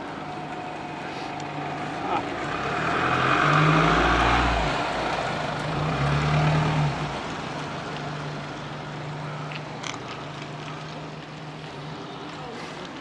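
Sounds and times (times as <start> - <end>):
faint clicks: 9.4 - 11.5.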